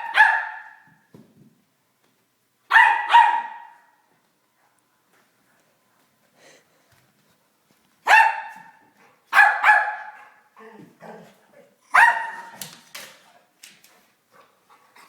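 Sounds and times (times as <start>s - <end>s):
dog barking: 0.0s - 0.8s, 2.7s - 4.0s, 8.1s - 10.4s, 11.9s - 12.6s.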